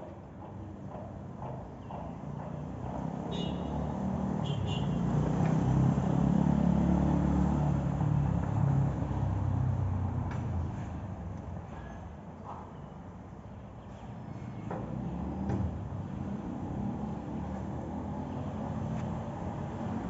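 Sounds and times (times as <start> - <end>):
vehicle engine rumble passing: 2.4 - 11.3, 14.9 - 20.0.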